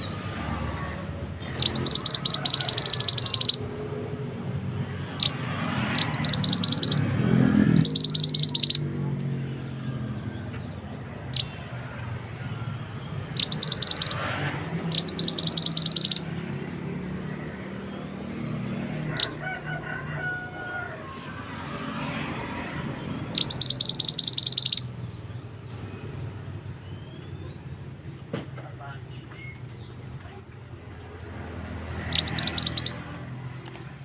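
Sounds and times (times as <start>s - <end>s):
songbird rattling trills: 1.5s - 3.6s, 5.2s - 7.1s, 7.7s - 8.9s, 13.3s - 16.3s, 23.3s - 24.9s, 32.0s - 33.0s.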